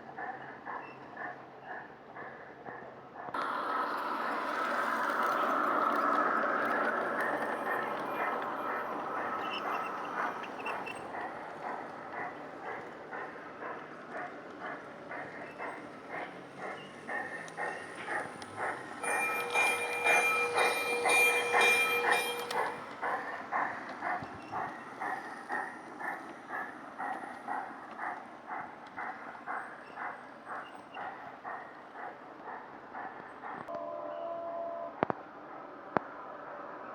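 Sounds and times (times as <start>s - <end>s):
train wheels clicking over rail joints: 0.1s - 33.7s
steady high tone: 19.0s - 23.0s.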